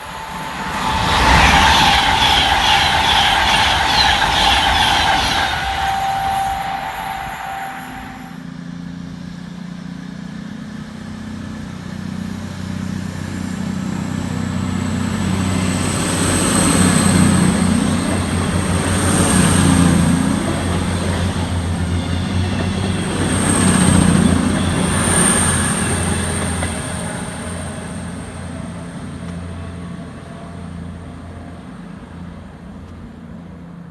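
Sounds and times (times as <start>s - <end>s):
high thin whine: 0.0s - 8.4s
passenger train passing: 0.0s - 33.9s.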